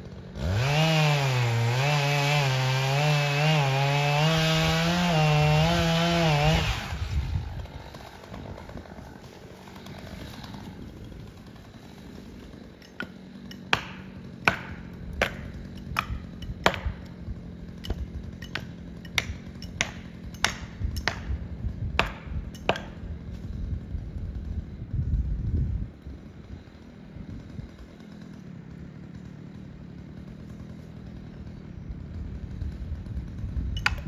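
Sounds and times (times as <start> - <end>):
faint engine hum: 6.9 - 34.0.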